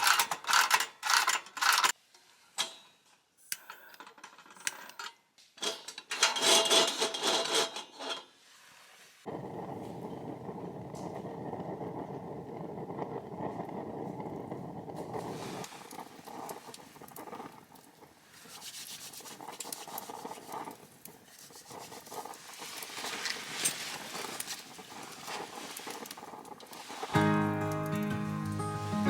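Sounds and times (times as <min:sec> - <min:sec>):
campfire crackling: 0:09.3 - 0:29.0
music: 0:27.1 - 0:29.0.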